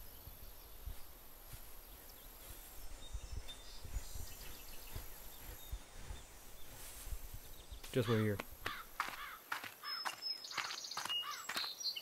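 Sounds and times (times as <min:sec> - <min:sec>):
wind rumble on microphone: 0:00.0 - 0:07.9
faint bird chirps: 0:00.0 - 0:12.0.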